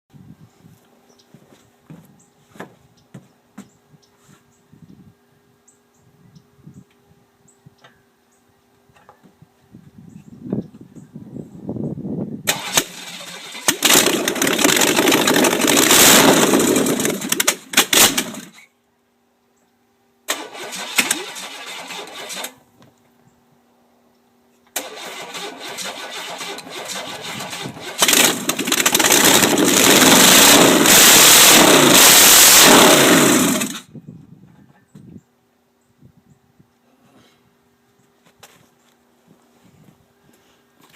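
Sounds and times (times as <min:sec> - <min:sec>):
engine running roughly: 0:12.5 - 0:18.6, 0:24.8 - 0:33.9.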